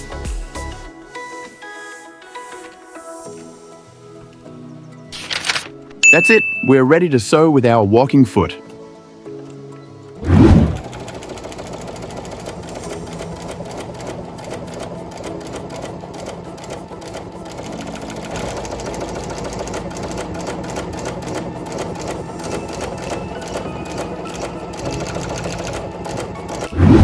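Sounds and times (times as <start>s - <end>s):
sewing machine stitching: 10.2s - 27.0s.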